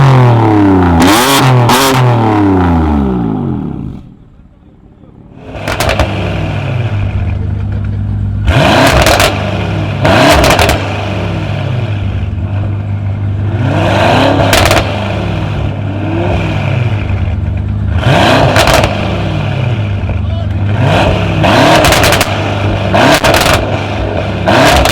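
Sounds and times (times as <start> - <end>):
car engine idling and revving: 0.0 - 24.9
exhaust cracks: 5.4 - 24.9.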